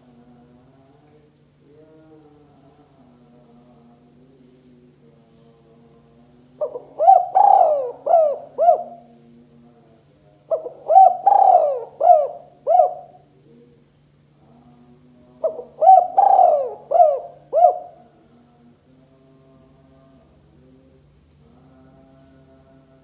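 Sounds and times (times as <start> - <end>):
dove cooing: 6.6 - 9.1, 10.5 - 13.2, 15.4 - 18.1.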